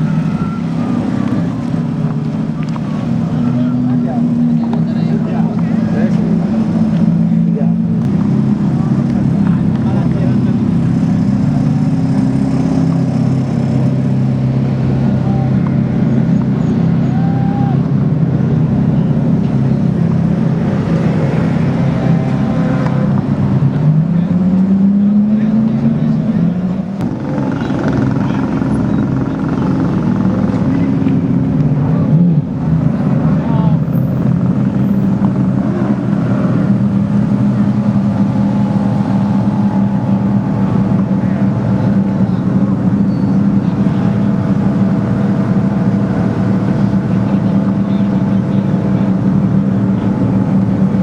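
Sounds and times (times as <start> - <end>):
car engine idling: 0.0 - 51.0.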